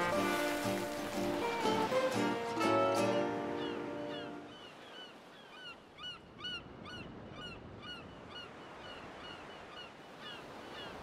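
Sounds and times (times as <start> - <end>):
surf washing: 0.0 - 5.7.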